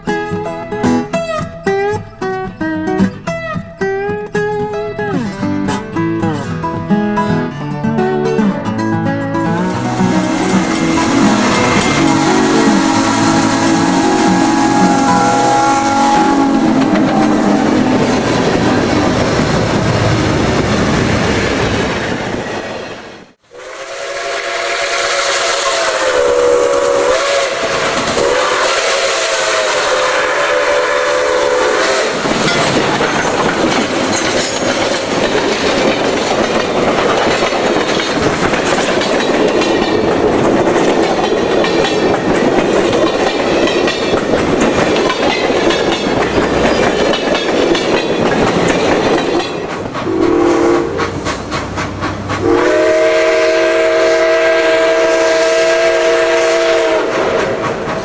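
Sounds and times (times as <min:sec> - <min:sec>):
passing train rushing and hissing: 0:00.0 - 0:02.2, 0:04.8 - 0:58.0
steam locomotive whistle: 0:09.6 - 0:18.2, 0:23.5 - 0:32.9, 0:50.0 - 0:51.2, 0:52.4 - 0:57.8
wheels clicking over rails: 0:32.1 - 0:52.6.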